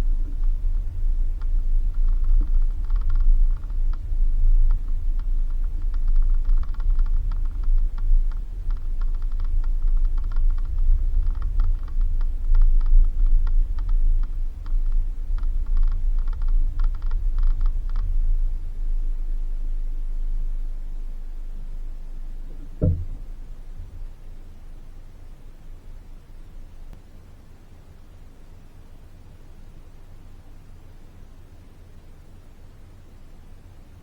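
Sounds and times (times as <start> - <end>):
cabin rattling and creaking: 0.0 - 18.8, 22.4 - 24.2
vehicle rumble on dirt road: 0.0 - 26.7.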